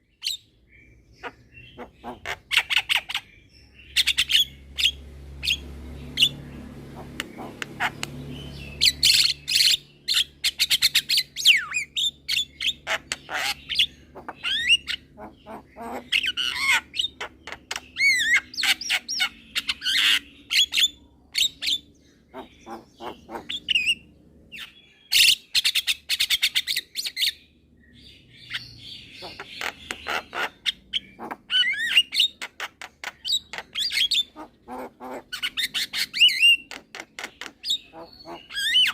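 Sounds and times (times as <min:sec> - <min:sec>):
myna clicks and squawks: 0:06.9 - 0:08.2, 0:29.2 - 0:38.9.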